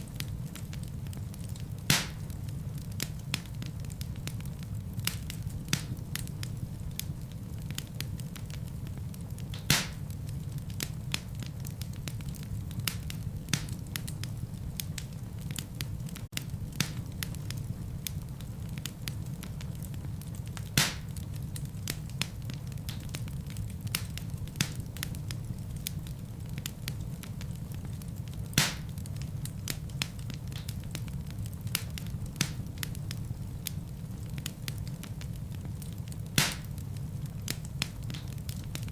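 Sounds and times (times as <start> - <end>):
fire crackling: 0.0 - 38.9
fire popping: 0.0 - 38.9.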